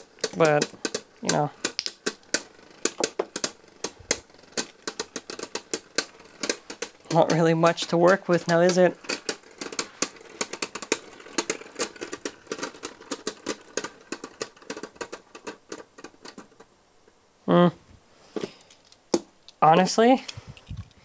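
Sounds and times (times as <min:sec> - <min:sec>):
toy parts clicking and clattering: 0:00.0 - 0:16.7, 0:18.4 - 0:21.0
person humming hm: 0:17.4 - 0:17.8.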